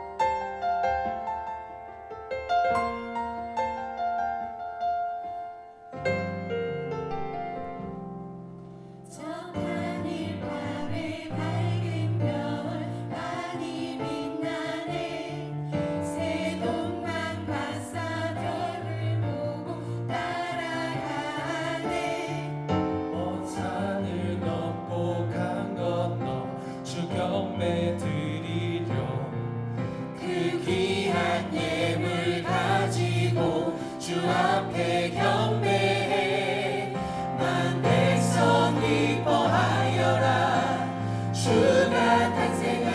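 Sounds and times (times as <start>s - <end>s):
piano: 0.0s - 42.9s
church choir singing: 7.2s - 42.9s.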